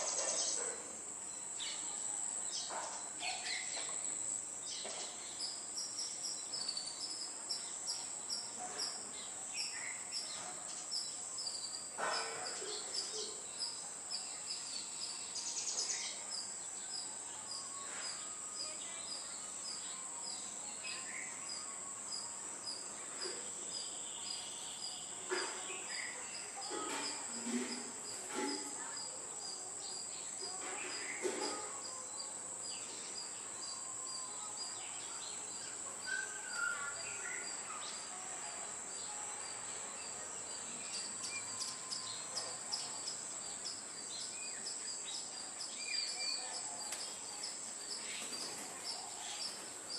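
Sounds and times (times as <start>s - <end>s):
high-pitched insect drone: 38.9s - 49.6s.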